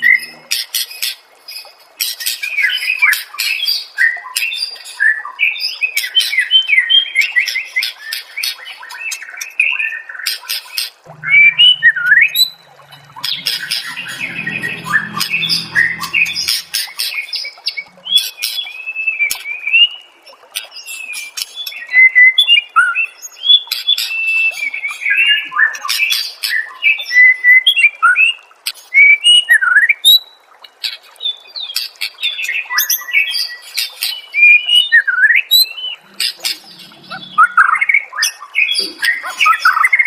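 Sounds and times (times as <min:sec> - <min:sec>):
brief low-pitched sound: 0:11.1 - 0:16.9.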